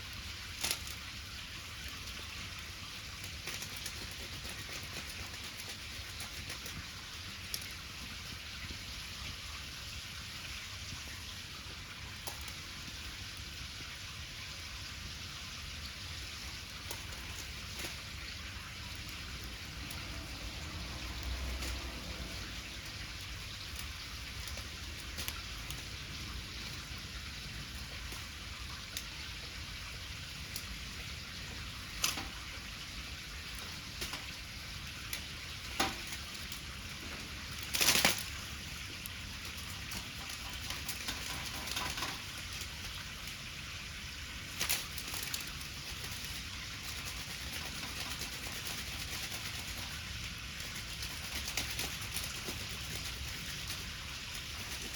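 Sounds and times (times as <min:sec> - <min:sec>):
bonfire hissing: 0:00.0 - 0:54.9
fire crackling and popping: 0:00.0 - 0:54.9.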